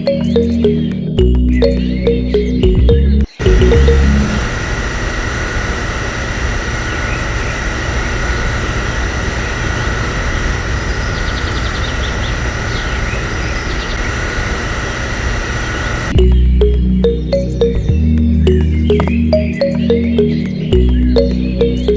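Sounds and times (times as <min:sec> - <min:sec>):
mechanical running noise with whine: 0:03.4 - 0:16.2.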